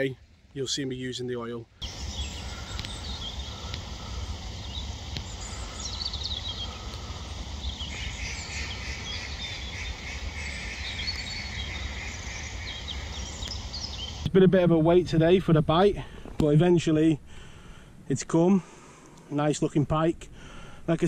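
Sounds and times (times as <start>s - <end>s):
small birds chirping: 0.6s - 14.3s
low steady rumble: 1.6s - 21.0s.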